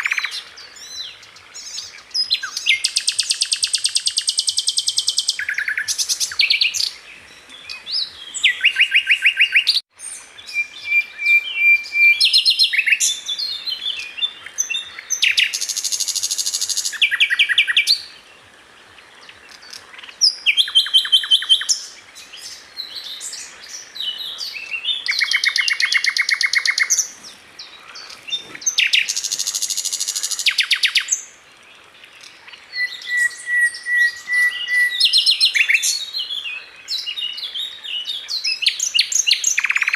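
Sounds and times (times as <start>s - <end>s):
bird chattering song: 0.0s - 18.1s, 19.5s - 31.2s, 32.2s - 39.9s
bird whistled notes: 32.7s - 36.0s.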